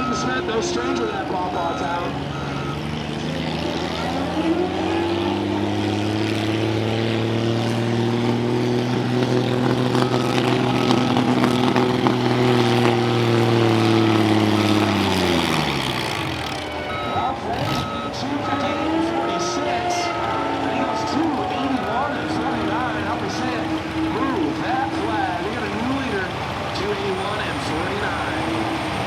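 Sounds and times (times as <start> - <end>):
faint reversing beeps: 0.0 - 5.8, 9.9 - 11.8, 13.1 - 23.5
tractor engine at high revs: 0.0 - 29.0.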